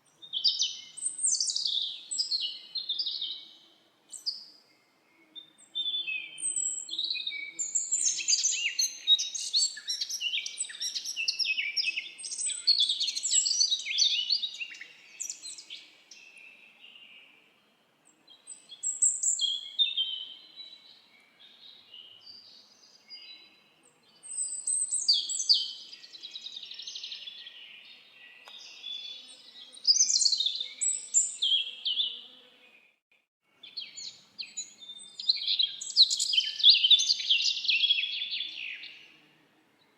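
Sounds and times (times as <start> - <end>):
songbirds chirping and trilling: 0.1 - 39.9.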